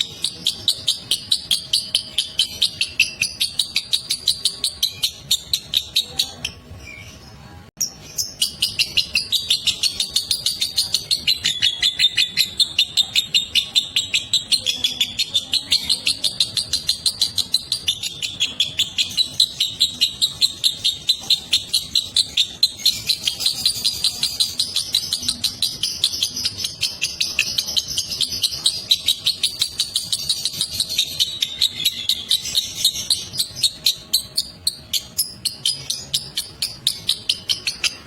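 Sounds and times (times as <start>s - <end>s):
lovebird shrill chatter: 8.2s - 38.0s.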